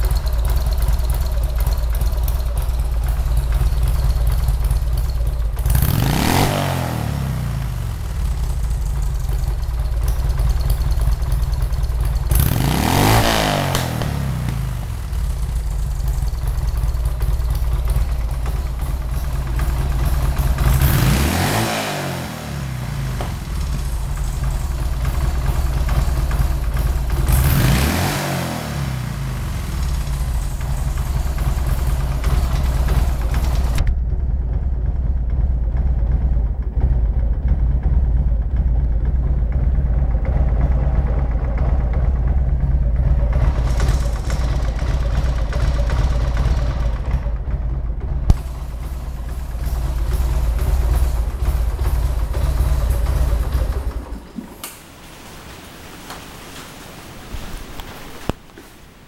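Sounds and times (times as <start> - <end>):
engine revving: 0.0 - 34.0, 36.2 - 54.7
motorcycle engine idling: 0.0 - 54.6.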